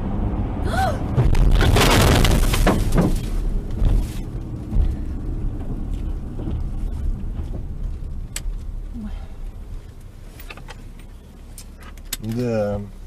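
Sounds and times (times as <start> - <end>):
vehicle rumble: 0.0 - 13.0
loud crash-like burst: 1.1 - 3.5
thump: 1.1 - 4.0.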